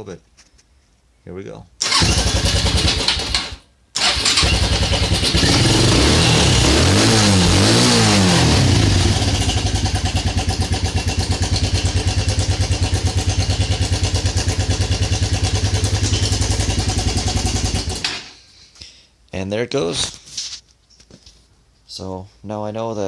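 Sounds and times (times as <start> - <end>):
quad bike engine revving and idling: 1.8 - 18.1.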